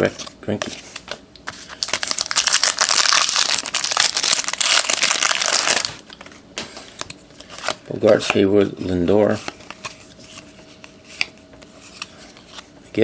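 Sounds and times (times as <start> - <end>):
plastic wrapper tearing and crinkling: 1.7 - 6.0.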